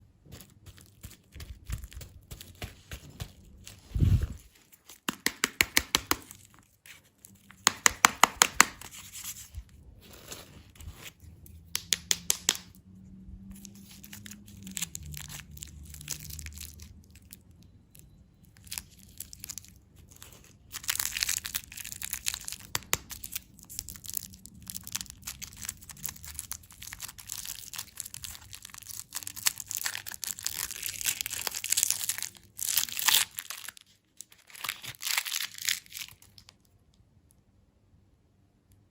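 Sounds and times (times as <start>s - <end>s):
packaging crinkling: 13.5s - 36.7s
candy packaging tearing: 13.5s - 36.8s.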